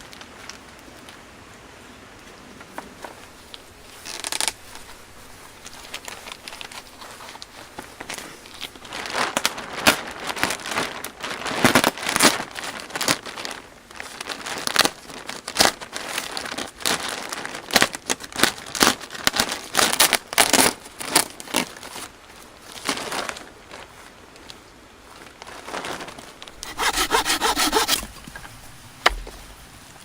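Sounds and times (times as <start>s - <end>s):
crinkling and crunching handling noise: 2.8s - 30.0s.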